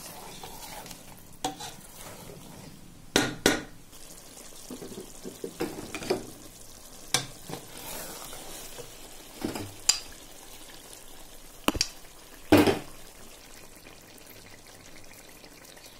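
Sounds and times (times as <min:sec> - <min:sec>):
wooden spatula stirring: 0:00.0 - 0:02.8, 0:07.2 - 0:09.8
curry sizzling in a pan: 0:00.0 - 0:15.9
spatula knocking against pan: 0:03.1 - 0:03.7.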